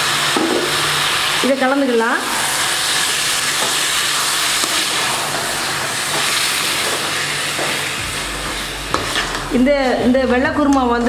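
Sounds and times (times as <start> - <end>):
food sizzling in hot oil: 0.0 - 11.0
metal spoon scraping pan: 8.9 - 9.6.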